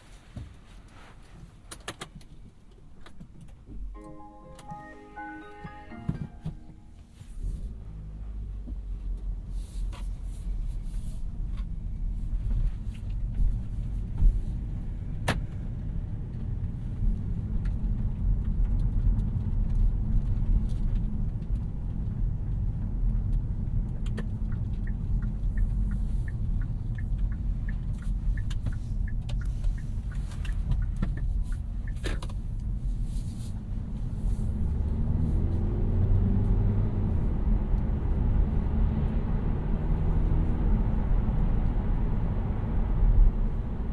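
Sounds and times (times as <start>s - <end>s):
road and tyre rumble: 0.0s - 3.8s, 7.3s - 43.9s
faint rising tone: 4.0s - 7.8s.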